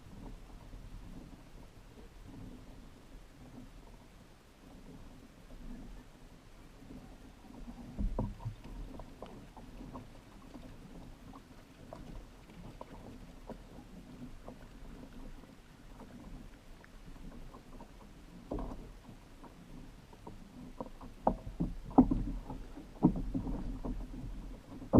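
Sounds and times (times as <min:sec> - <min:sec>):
water against plastic hull: 0:00.0 - 0:24.9
small clicks and ticks: 0:06.8 - 0:24.9.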